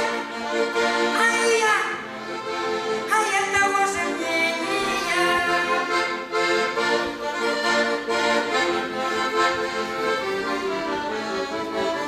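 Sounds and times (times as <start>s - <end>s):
accordion playing folk tune: 0.0s - 12.0s
person singing: 3.2s - 5.9s.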